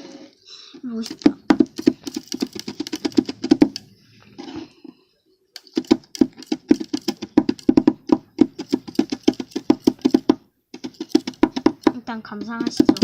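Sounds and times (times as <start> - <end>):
spatulas chopping on metal plate: 1.1 - 3.9, 5.6 - 13.0.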